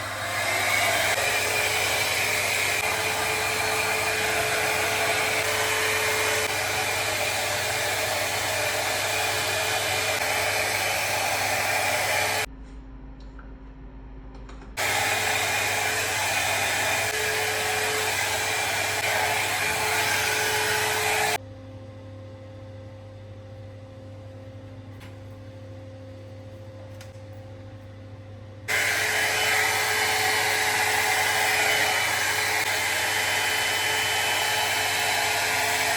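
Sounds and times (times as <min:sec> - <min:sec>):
hot-air brush blowing whir: 0:00.0 - 0:12.5, 0:14.8 - 0:21.4, 0:28.7 - 0:35.9.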